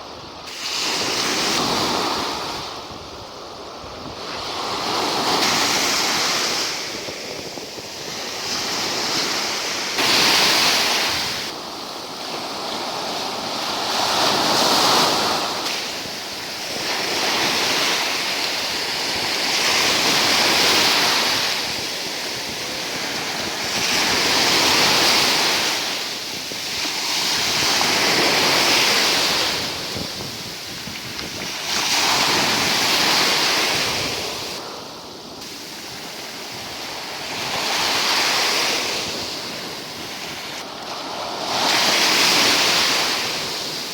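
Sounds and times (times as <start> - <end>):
waves breaking on shore: 0.0 - 43.9.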